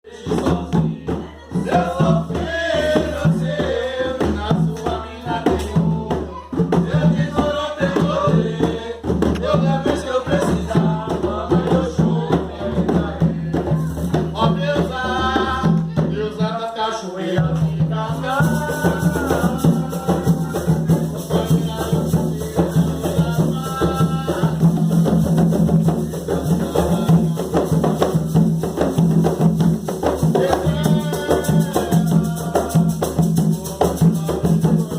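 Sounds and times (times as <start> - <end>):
voices singing: 0.0 - 34.9
hand drums: 0.1 - 16.5, 17.4 - 34.9
shaker rattle: 18.0 - 34.9.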